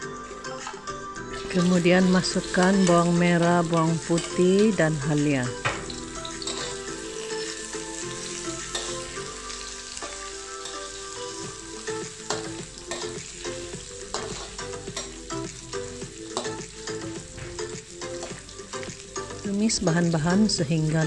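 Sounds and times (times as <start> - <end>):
food sizzling in hot oil: 0.0 - 21.0
metal spatula scraping a wok: 5.8 - 11.4, 12.2 - 15.2.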